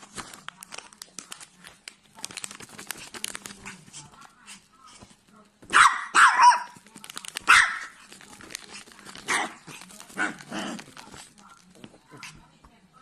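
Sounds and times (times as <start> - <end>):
dog barking: 5.7 - 6.8, 7.4 - 8.0, 9.2 - 9.6.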